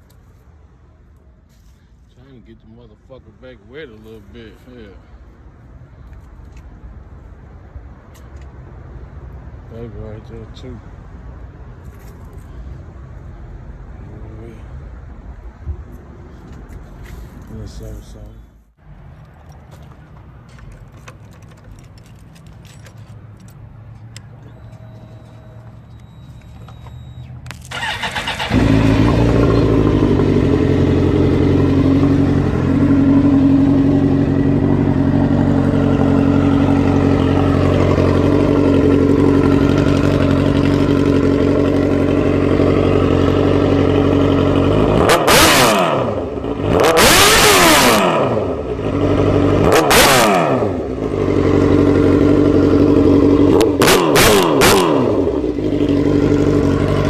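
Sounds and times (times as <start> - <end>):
car engine revving: 27.7 - 57.0.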